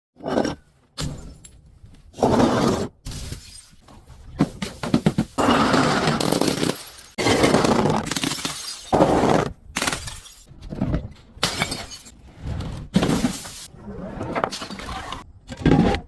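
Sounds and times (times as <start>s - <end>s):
glass bottles shattering and crunching: 4.7s - 10.5s, 11.4s - 12.2s, 13.0s - 13.7s.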